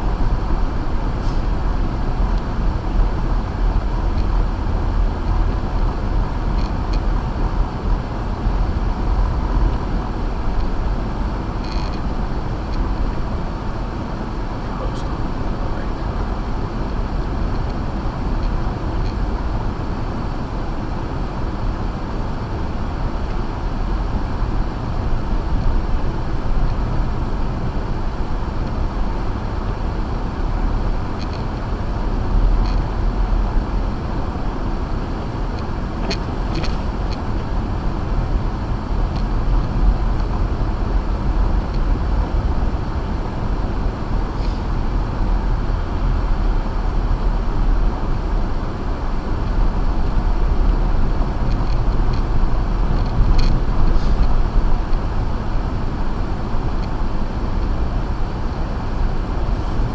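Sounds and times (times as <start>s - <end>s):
car driving on snowy road: 0.0s - 59.9s.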